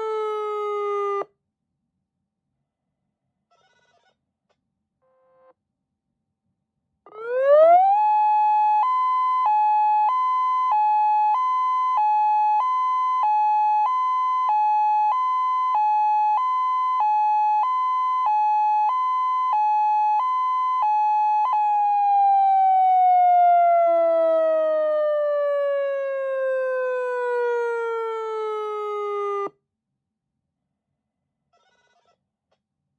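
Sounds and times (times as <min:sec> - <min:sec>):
electronic hi-lo warning siren: 0:07.1 - 0:29.5.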